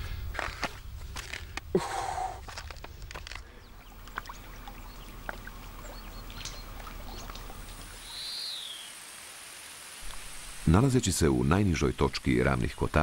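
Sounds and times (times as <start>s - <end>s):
lake water splashes: 3.2s - 8.2s.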